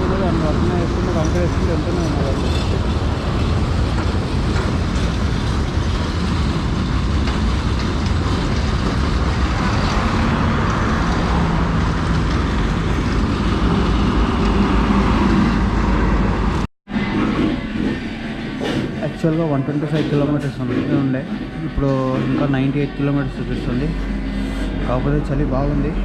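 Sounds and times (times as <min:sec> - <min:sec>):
wind rushing over microphone: 0:00.0 - 0:19.2.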